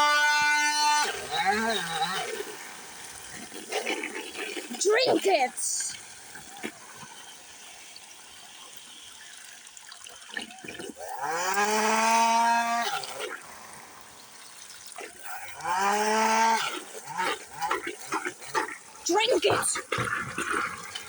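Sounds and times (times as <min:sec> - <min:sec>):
handheld vacuum cleaner motor: 0:00.0 - 0:05.2, 0:11.0 - 0:14.2, 0:15.0 - 0:21.0.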